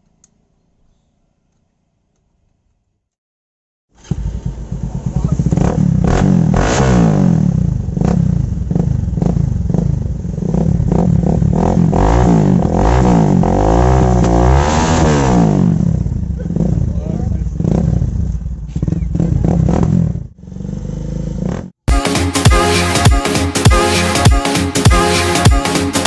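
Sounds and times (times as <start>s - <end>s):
motorcycle engine revving: 4.0s - 21.8s.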